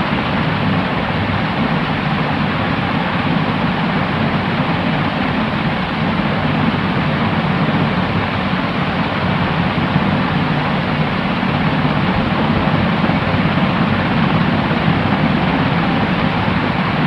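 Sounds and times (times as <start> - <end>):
steady white noise: 0.0 - 17.0.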